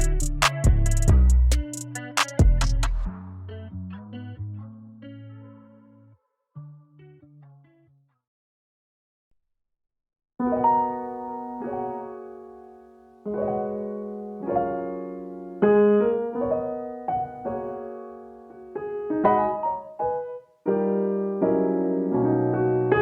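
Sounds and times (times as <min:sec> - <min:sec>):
piano playing slow chords: 0:10.4 - 0:23.0.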